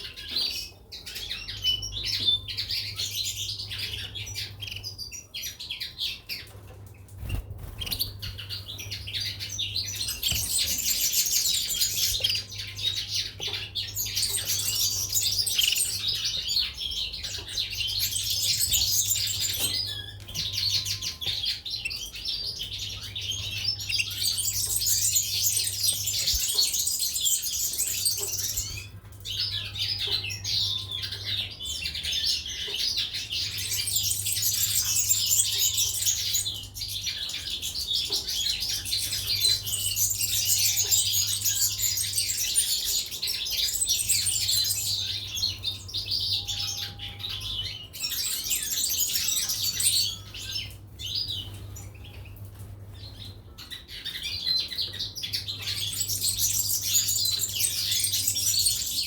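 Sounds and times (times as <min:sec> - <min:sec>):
finches chirping and singing: 0:00.0 - 0:59.0.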